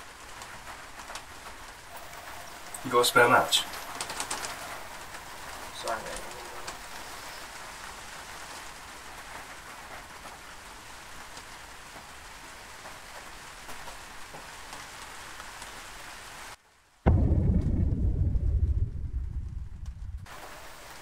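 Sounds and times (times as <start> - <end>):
steady rain: 0.0 - 21.0
loud deep rumble: 17.1 - 20.4.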